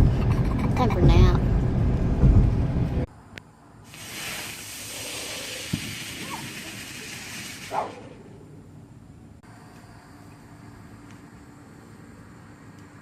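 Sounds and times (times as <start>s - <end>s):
sparkler burning with a hiss: 3.9s - 8.2s.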